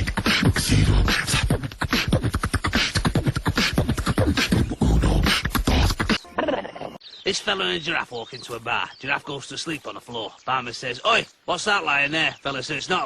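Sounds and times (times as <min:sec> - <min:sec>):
person beatboxing: 0:00.0 - 0:06.2.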